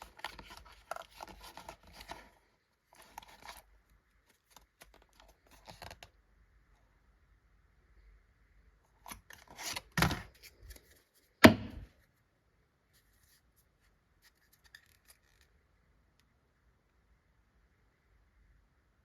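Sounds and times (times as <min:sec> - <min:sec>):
card packaging rustling: 0:00.0 - 0:03.7.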